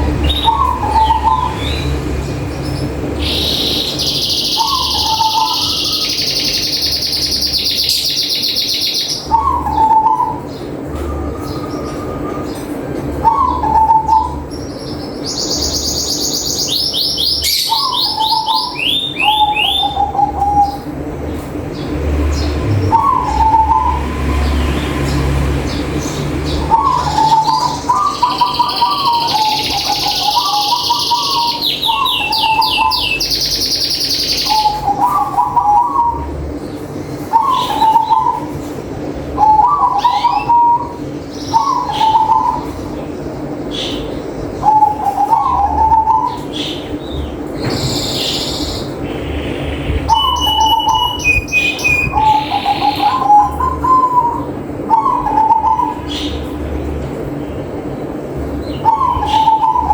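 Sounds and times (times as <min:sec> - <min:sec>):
dove cooing: 0:00.0 - 0:02.0, 0:04.5 - 0:06.6, 0:09.2 - 0:14.5, 0:17.4 - 0:20.9, 0:22.2 - 0:25.4, 0:26.6 - 0:33.3, 0:34.2 - 0:36.5, 0:37.3 - 0:38.7, 0:39.4 - 0:42.9, 0:43.7 - 0:47.0, 0:50.0 - 0:56.6, 0:58.4 - 0:59.9
bird chirping trills: 0:00.0 - 0:59.9
steady low hum: 0:00.0 - 0:59.9.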